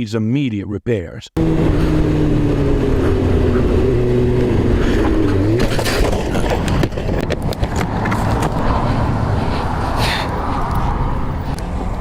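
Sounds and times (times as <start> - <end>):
motorcycle engine revving: 1.4 - 10.1
clatter of clicks and knocks: 5.6 - 8.6.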